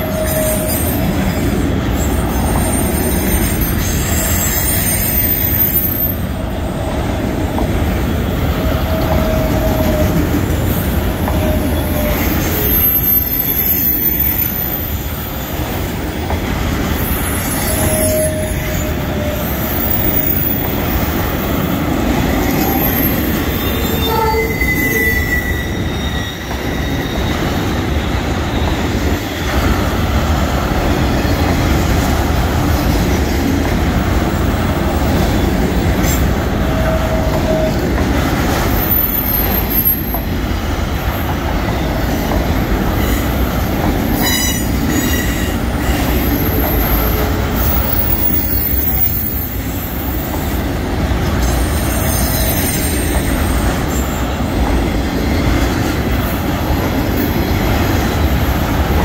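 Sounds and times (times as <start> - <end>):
wheel squeals: 0.0 - 6.2, 17.0 - 29.7
train wheels rumbling on rails: 0.0 - 59.0.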